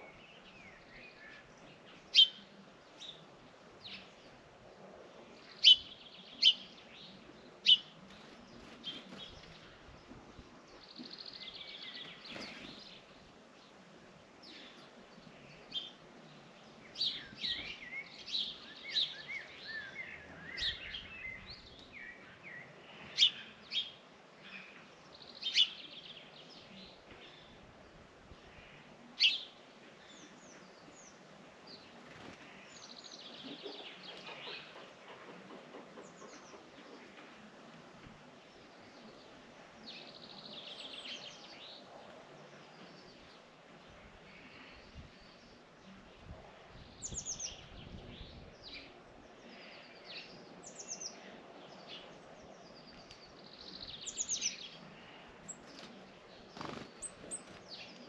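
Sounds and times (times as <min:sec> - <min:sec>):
small birds chirping: 0:05.4 - 0:13.8, 0:38.2 - 0:58.0.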